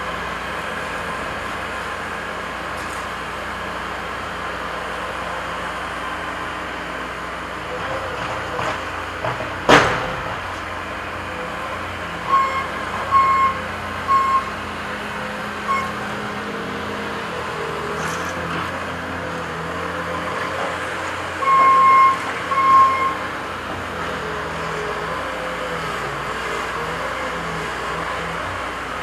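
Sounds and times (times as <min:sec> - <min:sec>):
diesel engine running: 0:00.0 - 0:29.0
backup alarm beeps: 0:12.3 - 0:14.5, 0:15.7 - 0:16.0, 0:21.4 - 0:23.2.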